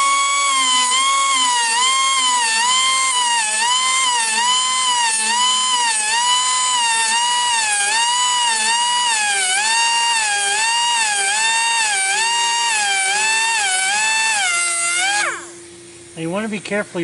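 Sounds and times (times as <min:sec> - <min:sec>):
air grinder whining: 0:00.0 - 0:15.7.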